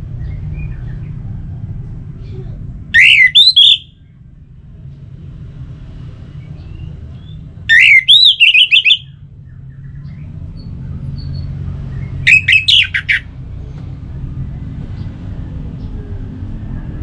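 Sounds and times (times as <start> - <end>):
thrush singing: 11.9 - 13.4.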